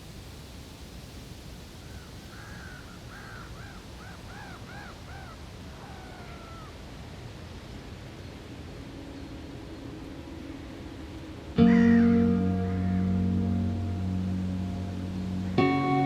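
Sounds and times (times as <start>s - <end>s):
crow-like bird calls: 1.9s - 6.7s, 11.6s - 12.3s
low outdoor background rumble: 7.5s - 16.0s.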